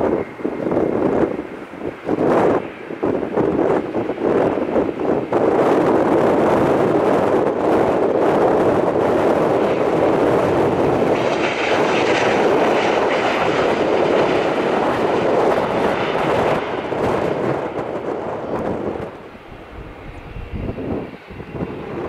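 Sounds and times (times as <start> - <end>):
high engine whine: 0.0 - 22.0
jet engines running: 0.0 - 22.0.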